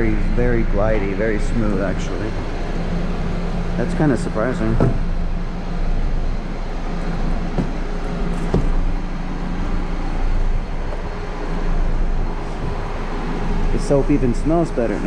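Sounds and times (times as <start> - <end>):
low mechanical hum: 0.0 - 15.0
faint knocks: 7.5 - 7.8.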